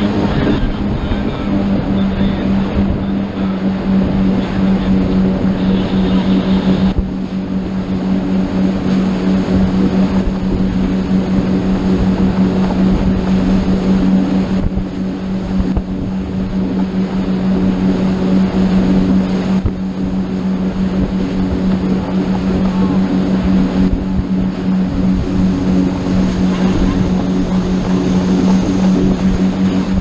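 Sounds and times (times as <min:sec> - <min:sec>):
motorboat engine drone: 0:00.0 - 0:30.0
wind and water rushing: 0:00.0 - 0:30.0.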